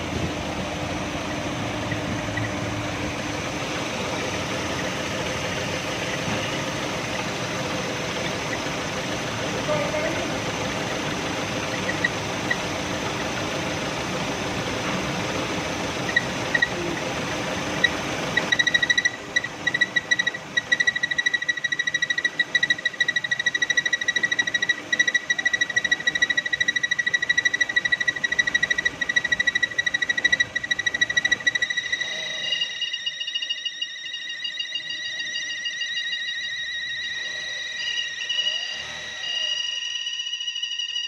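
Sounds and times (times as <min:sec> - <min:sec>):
car engine running: 0:00.0 - 0:32.6
high-pitched engine whistle: 0:15.8 - 0:41.0.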